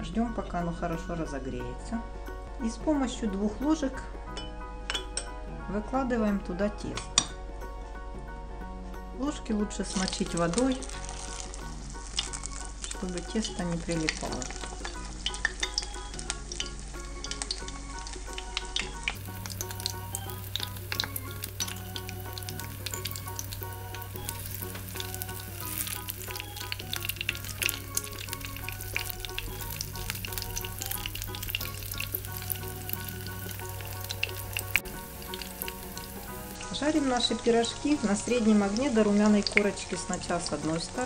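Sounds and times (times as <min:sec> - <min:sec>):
pies frying in hot oil: 0:09.8 - 0:41.0.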